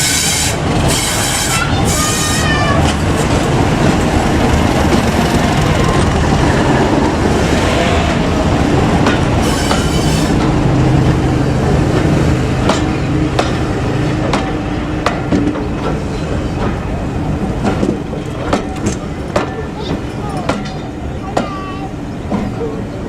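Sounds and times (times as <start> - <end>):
train rumbling along rails: 0.0 - 23.0
high-pitched wheel squeal: 9.4 - 10.4
wheels clicking over rail joints: 11.9 - 22.8.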